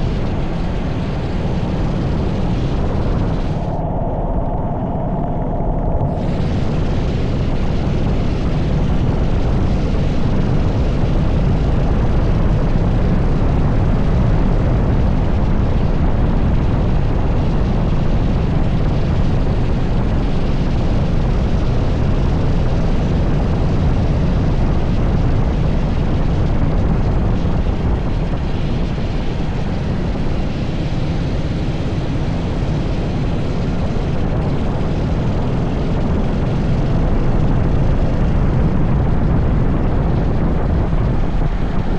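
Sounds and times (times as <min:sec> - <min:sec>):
wind rushing on microphone: 0:00.0 - 0:41.9.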